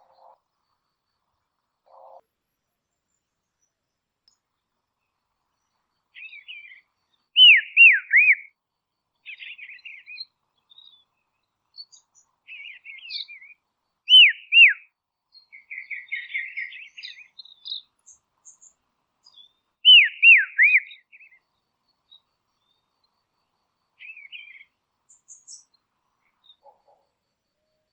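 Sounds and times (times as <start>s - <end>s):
songbird whistled notes: 7.4s - 8.5s, 14.1s - 14.8s, 19.3s - 21.4s.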